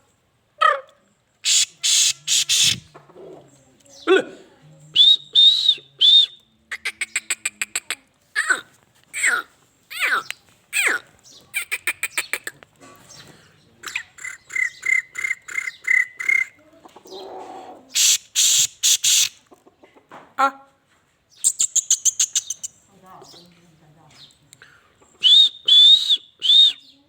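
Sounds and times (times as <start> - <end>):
bird calling with harsh grating notes: 1.4 - 3.0, 6.7 - 17.2, 17.9 - 19.4, 21.4 - 22.8.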